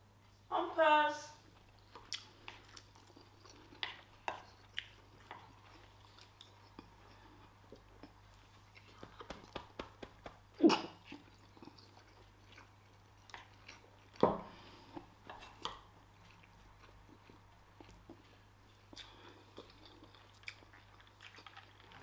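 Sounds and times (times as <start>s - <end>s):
chewing: 1.4s - 9.6s, 10.6s - 22.0s.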